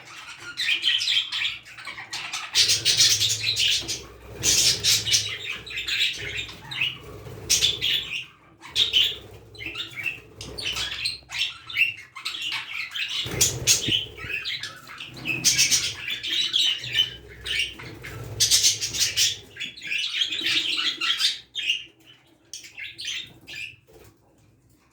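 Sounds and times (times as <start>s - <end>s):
budgerigars chirping and warbling: 0.0s - 24.2s
wing flapping: 13.2s - 14.5s.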